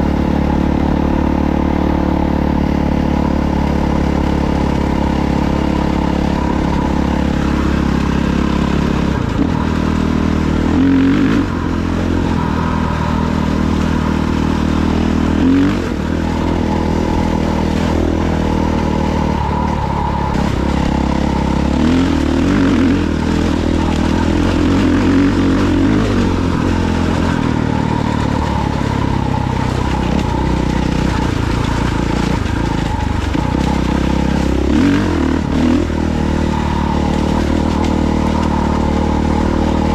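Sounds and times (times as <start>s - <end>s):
dirt bike engine revving: 0.0s - 39.9s
rattle and clatter: 11.7s - 39.9s.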